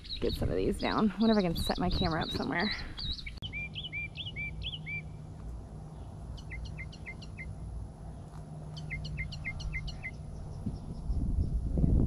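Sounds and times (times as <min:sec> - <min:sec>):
bird singing: 0:00.0 - 0:11.6
low steady hum: 0:00.0 - 0:12.0.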